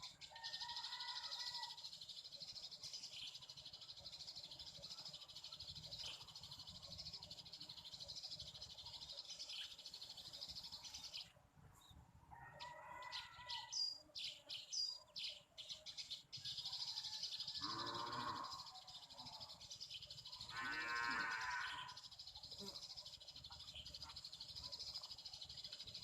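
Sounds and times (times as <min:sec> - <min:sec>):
small birds chirping: 0:00.0 - 0:26.0
longer lower bird calls: 0:12.3 - 0:26.0
high drone of insects: 0:17.6 - 0:26.0.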